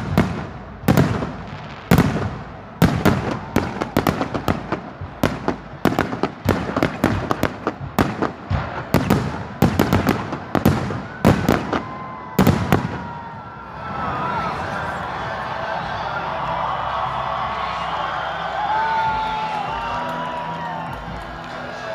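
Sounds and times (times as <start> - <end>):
fireworks bangs and cracks: 0.0 - 13.6.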